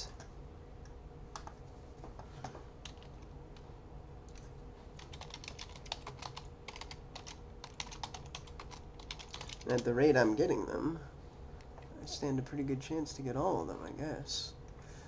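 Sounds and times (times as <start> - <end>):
keyboard typing: 2.8 - 3.3, 4.3 - 9.9.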